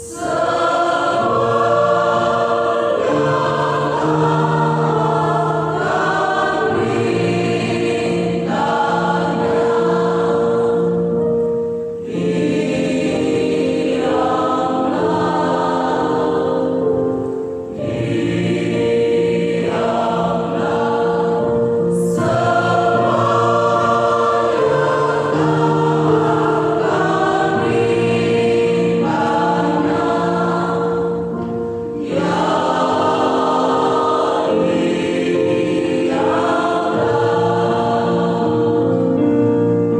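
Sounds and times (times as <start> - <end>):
choir singing in harmony: 0.0 - 39.9.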